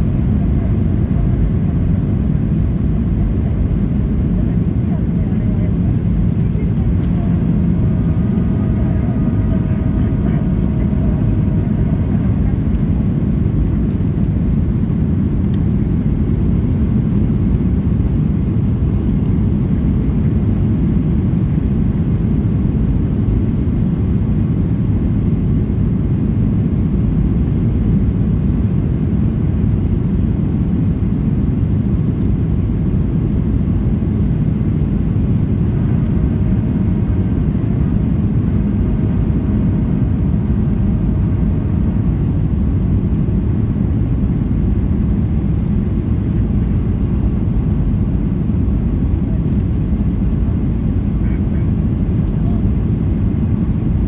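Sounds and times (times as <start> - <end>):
airflow over fuselage: 0.0 - 15.8, 34.1 - 54.0
airplane cabin jet engine rumble: 0.0 - 54.0.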